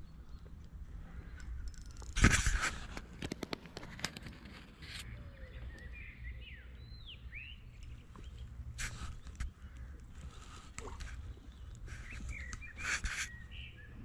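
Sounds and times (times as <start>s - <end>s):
birds chirping: 5.0s - 14.0s.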